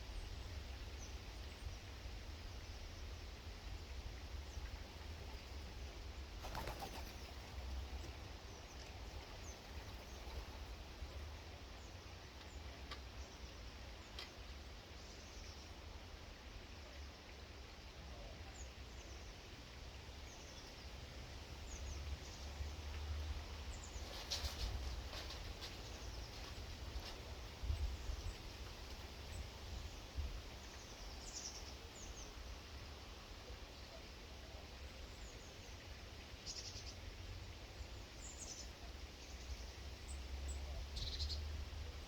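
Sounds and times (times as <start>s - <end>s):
bird wingbeats: 6.4s - 8.2s, 8.8s - 11.0s, 23.8s - 27.6s.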